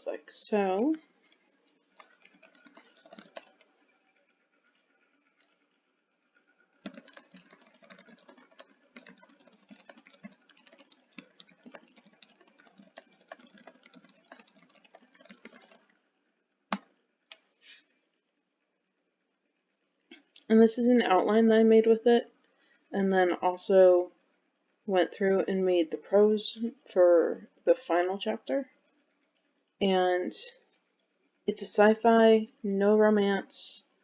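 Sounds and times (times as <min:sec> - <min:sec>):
typing on a computer keyboard: 0:00.6 - 0:03.9, 0:05.3 - 0:05.6, 0:06.6 - 0:16.0, 0:16.7 - 0:17.4
sharp keyboard click: 0:02.0 - 0:03.7, 0:06.8 - 0:16.0.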